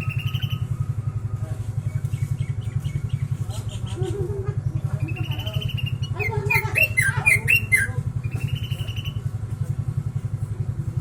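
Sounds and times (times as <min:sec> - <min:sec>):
bird singing whistles and chirps: 0:05.2 - 0:09.2.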